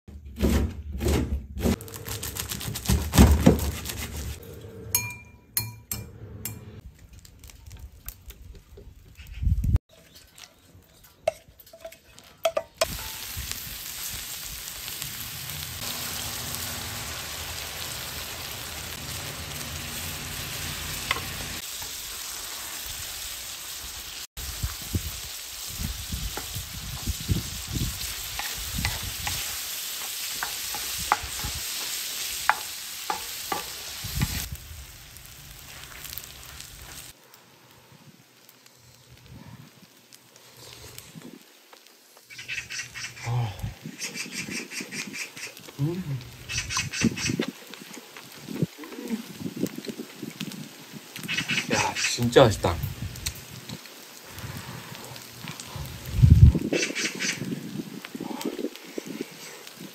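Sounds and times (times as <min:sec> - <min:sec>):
food sizzling on a griddle: 0:12.8 - 0:43.1, 0:44.9 - 0:59.9.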